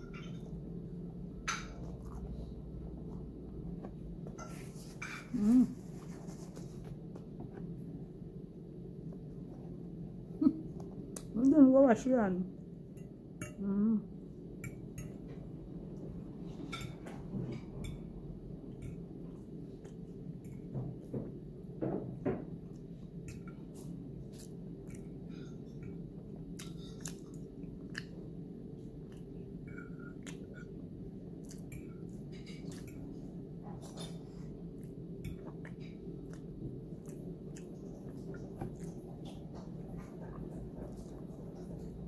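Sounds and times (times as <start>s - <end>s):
low background hum: 0.0s - 42.0s
person chewing food: 1.7s - 4.8s, 22.6s - 42.0s.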